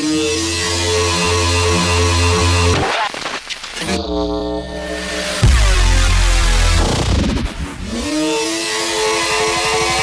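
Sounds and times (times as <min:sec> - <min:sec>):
electronic dance music: 0:05.4 - 0:07.9.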